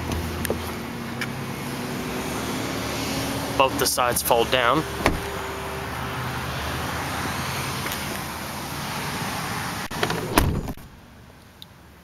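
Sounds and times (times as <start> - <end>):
car door shutting: 5.0 - 5.4, 9.9 - 10.9.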